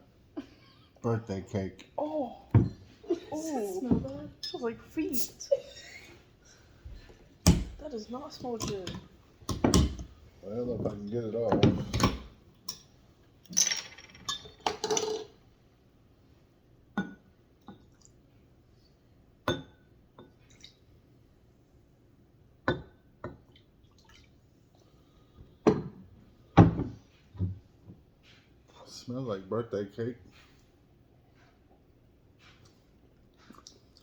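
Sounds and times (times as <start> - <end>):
glass clinks and knocks: 13.5 - 15.3, 17.0 - 17.3, 19.5 - 20.3, 22.7 - 23.4, 25.7 - 26.0.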